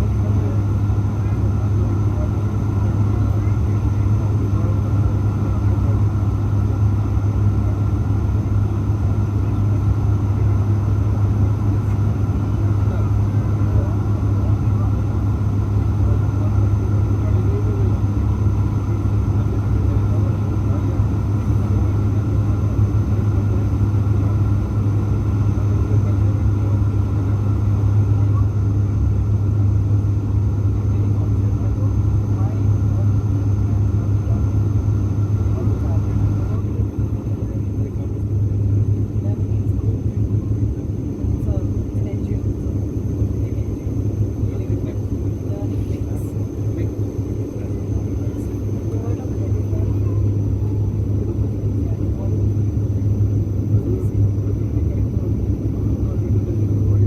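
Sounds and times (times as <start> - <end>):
airliner engine rumble: 0.0 - 57.0.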